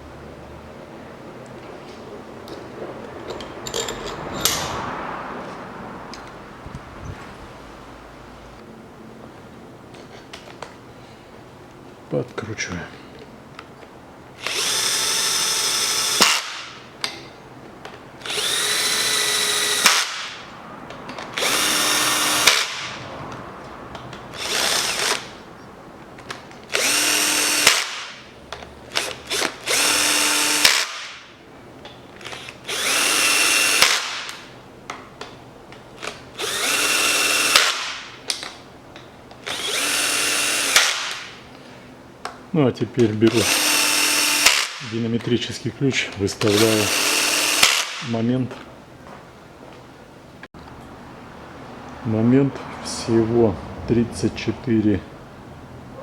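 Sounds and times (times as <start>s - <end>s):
cordless drill whining: 14.4s - 16.6s, 18.2s - 20.3s, 21.4s - 22.8s, 24.3s - 25.4s, 26.7s - 28.0s, 28.9s - 31.0s, 32.2s - 34.1s, 36.0s - 37.9s, 39.4s - 41.1s, 43.3s - 44.8s, 46.4s - 48.0s.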